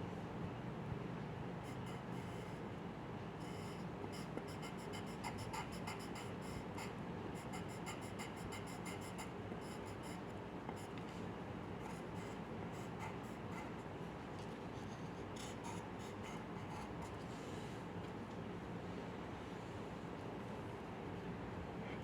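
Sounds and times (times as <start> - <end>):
pencil scratching on paper: 4.2 - 11.0, 11.8 - 13.9, 14.8 - 17.2.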